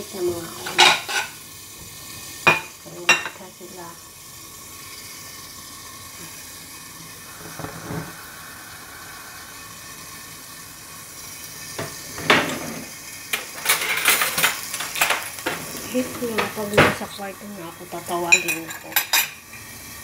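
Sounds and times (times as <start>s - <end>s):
chicken sizzling in a pan: 0.0s - 20.0s
kitchenware clattering: 0.5s - 1.4s, 2.4s - 3.5s, 11.8s - 17.2s, 18.0s - 19.4s.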